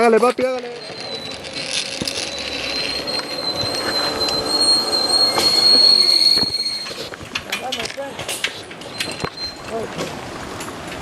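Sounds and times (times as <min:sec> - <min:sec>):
zipline pulleys whining on cable: 0:00.7 - 0:07.1
rushing noise: 0:00.7 - 0:07.2.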